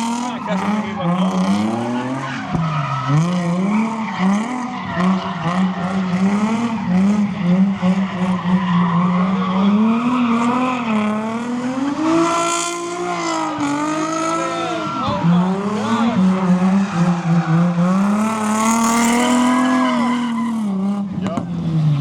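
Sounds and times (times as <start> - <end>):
car engine at high revs: 0.0 - 22.0
tyres squealing: 13.1 - 20.7.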